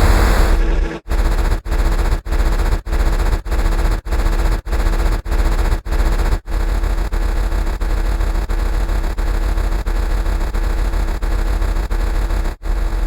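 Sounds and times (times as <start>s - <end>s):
harsh distorted sound effect: 0.0s - 1.9s.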